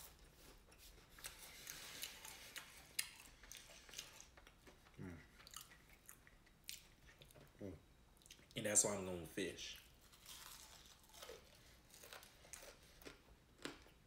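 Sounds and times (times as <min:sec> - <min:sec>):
chewing and mouth noises: 0:00.1 - 0:08.6, 0:09.8 - 0:14.0
person murmuring: 0:05.0 - 0:05.3.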